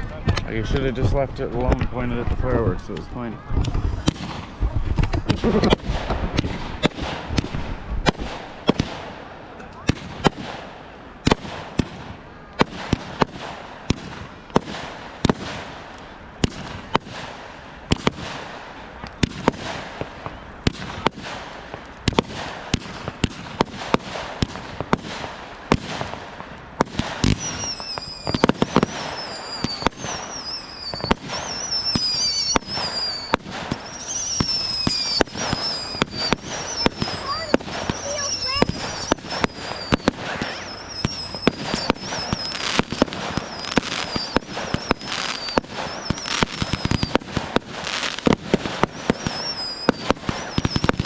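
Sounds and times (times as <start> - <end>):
fireworks bangs and crackles: 0.0 - 51.0
whistling fireworks: 3.0 - 51.0.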